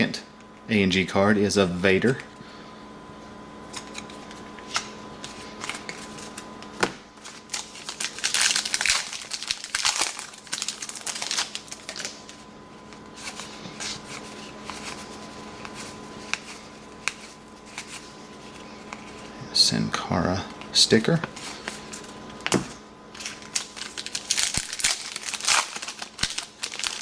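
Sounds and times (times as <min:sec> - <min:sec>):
cards clicking and sliding: 0:03.7 - 0:07.7, 0:12.9 - 0:19.2
card wrapper crinkling: 0:03.7 - 0:19.3, 0:21.3 - 0:27.0.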